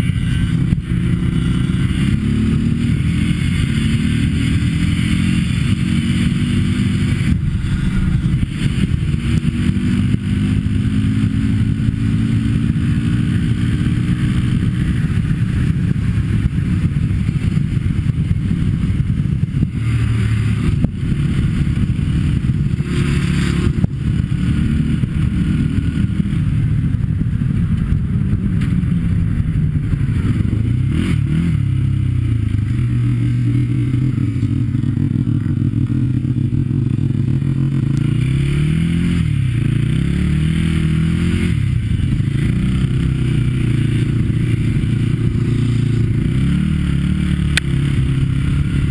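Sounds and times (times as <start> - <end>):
atv engine running: 0.0 - 48.9.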